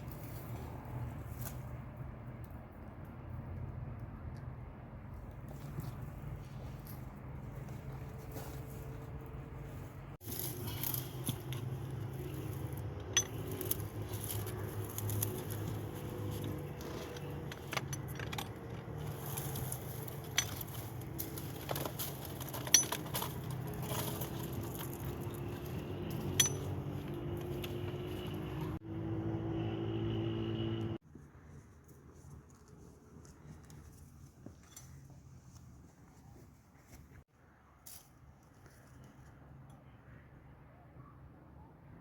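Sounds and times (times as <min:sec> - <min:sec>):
sharp clinks and knocks: 0:10.5 - 0:28.7.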